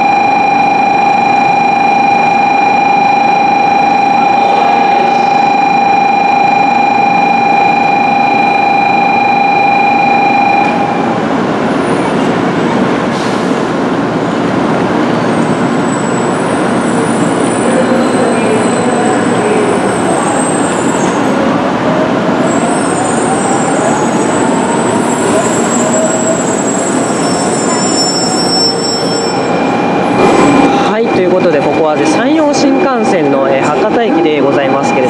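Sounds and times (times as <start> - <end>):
high-pitched train whine: 0.0 - 35.0
standing train running noise: 0.0 - 35.0.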